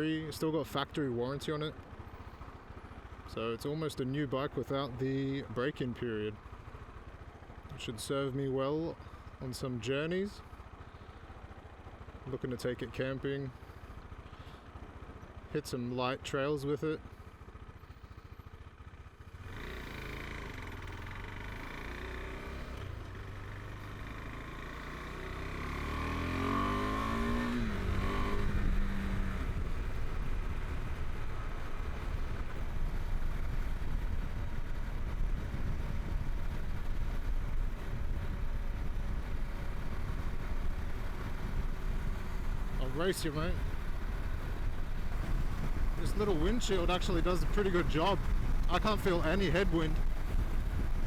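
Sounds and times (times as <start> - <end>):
motorcycle engine accelerating: 17.4 - 51.0.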